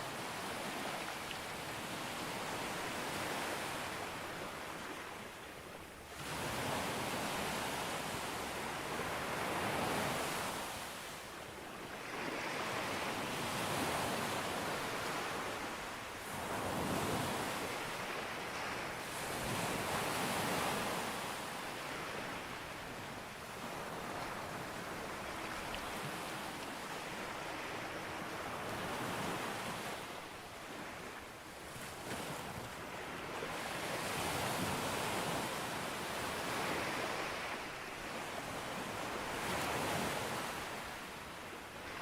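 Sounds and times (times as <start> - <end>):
sea waves breaking on beach: 23.6 - 42.0.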